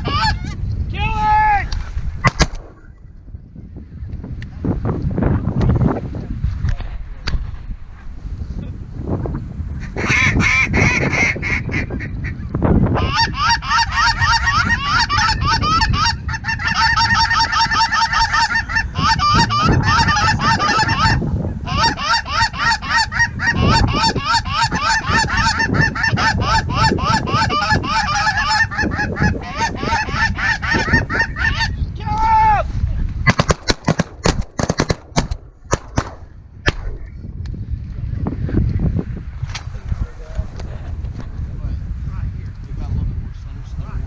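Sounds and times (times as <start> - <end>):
wind rumble on microphone: 0.0 - 44.0
geese honking: 10.0 - 31.8.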